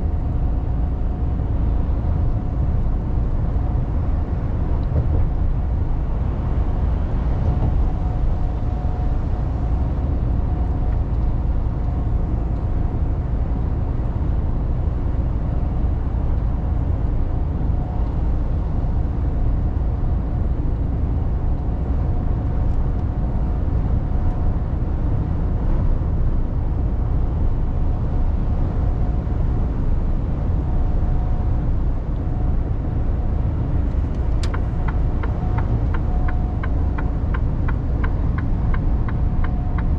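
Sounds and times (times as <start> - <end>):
diesel truck engine rumble: 0.0 - 39.9
road noise: 0.0 - 39.9.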